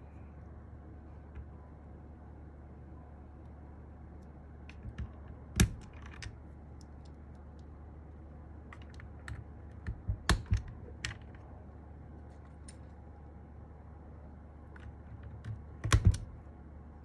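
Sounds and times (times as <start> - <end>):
mechanical keyboard keystrokes: 4.7 - 6.4, 8.7 - 11.4, 14.8 - 16.4.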